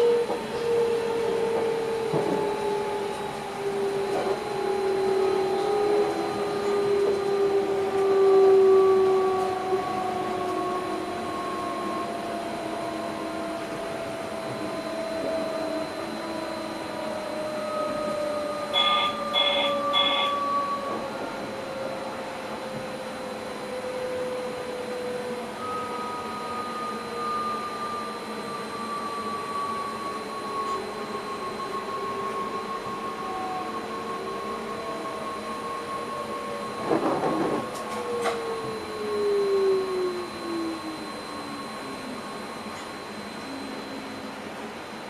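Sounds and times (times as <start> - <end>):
electric train drive whining: 0.0 - 45.0
short electronic beeps: 18.8 - 20.4.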